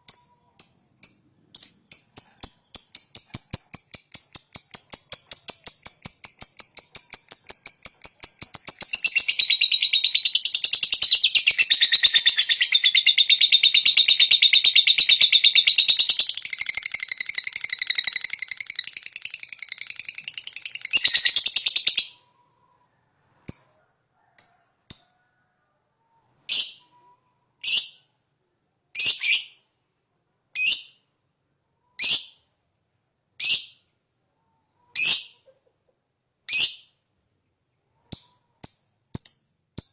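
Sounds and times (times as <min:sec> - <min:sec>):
lovebird chattering trill: 0:00.0 - 0:22.3.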